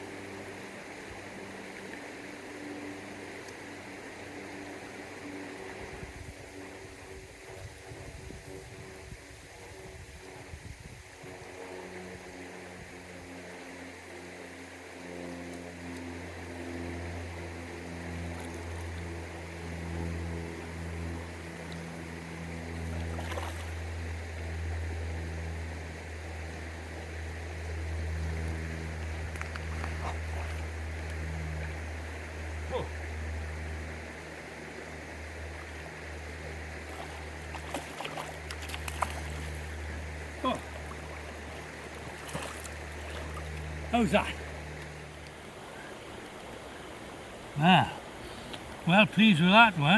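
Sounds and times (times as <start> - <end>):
stream water rushing: 0.0 - 8.1, 8.8 - 49.9
low droning hum: 0.0 - 49.9.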